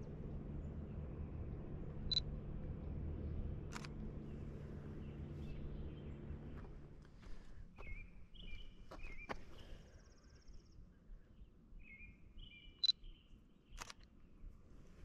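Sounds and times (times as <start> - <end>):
faint street ambience: 0.0 - 15.0
songbird chirping: 3.2 - 14.2
sharp clicks: 13.8 - 14.1.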